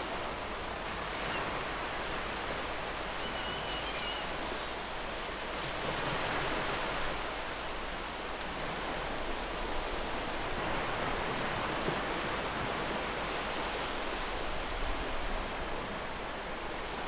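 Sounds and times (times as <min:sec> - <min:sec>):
sea surf: 0:00.0 - 0:17.0
faint high bird call: 0:03.0 - 0:04.5.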